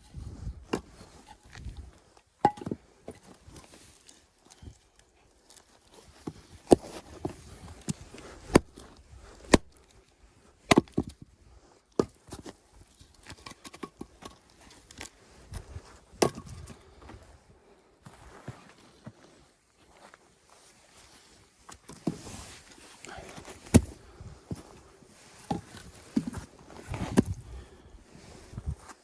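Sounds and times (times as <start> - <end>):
axe chopping firewood: 2.4 - 3.2, 6.3 - 7.1, 7.9 - 9.8, 10.6 - 11.2, 16.2 - 16.7, 23.6 - 24.0, 25.5 - 27.4.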